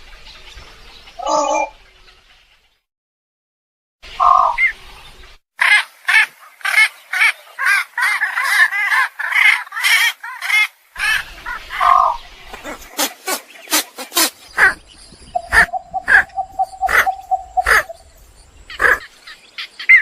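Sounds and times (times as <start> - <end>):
egret calling: 5.6 - 18.1, 18.7 - 19.1.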